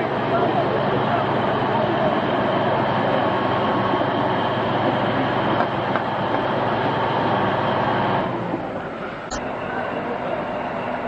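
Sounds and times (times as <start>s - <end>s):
heavy machinery running: 0.0s - 11.0s.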